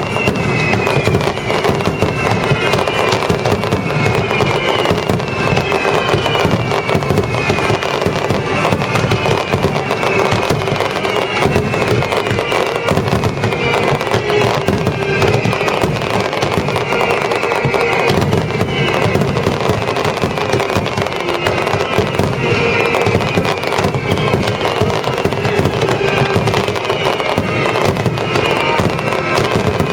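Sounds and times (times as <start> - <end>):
fireworks bursts and crackles: 0.0 - 29.9
orchestral music over loudspeakers: 0.0 - 29.9.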